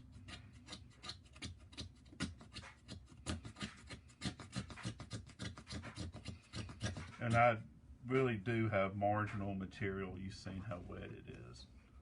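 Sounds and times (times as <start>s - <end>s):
scraping and rubbing on wood: 0.2s - 7.5s.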